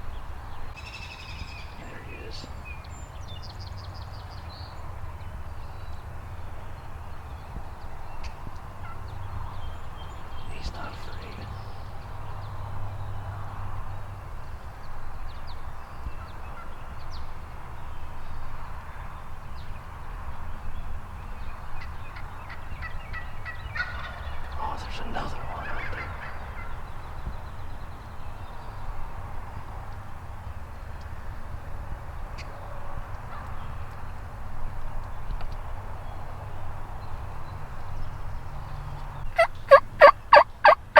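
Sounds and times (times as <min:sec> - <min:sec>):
low outdoor background noise: 0:00.0 - 0:40.9
turkey gobbling: 0:22.5 - 0:24.2, 0:39.4 - 0:40.9.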